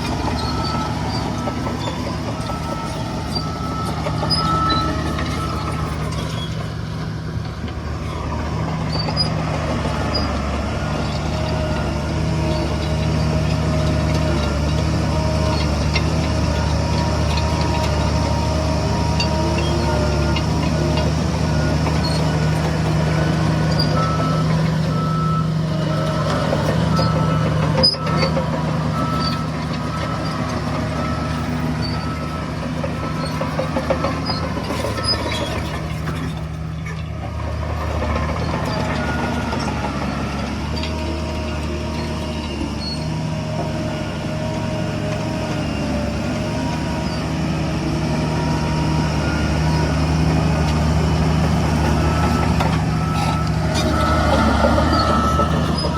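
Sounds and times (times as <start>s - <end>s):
diesel construction machinery running: 0.0s - 55.9s
high-pitched reversing alarm beeping: 0.4s - 7.0s, 23.4s - 35.4s, 51.0s - 55.9s
lower-pitched reversing alarm beeping: 0.4s - 7.7s, 23.3s - 35.3s, 50.9s - 55.9s.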